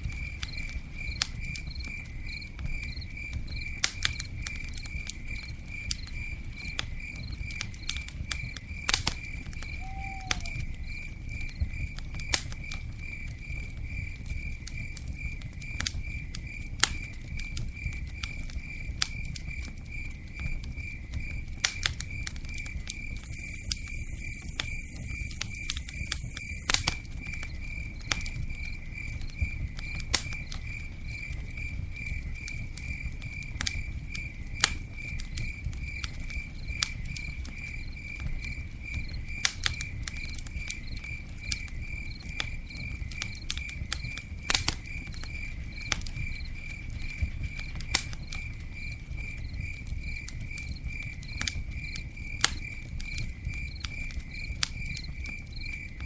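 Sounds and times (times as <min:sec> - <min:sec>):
campfire crackling and popping: 0:00.0 - 0:56.0
cricket chirping: 0:00.0 - 0:56.0.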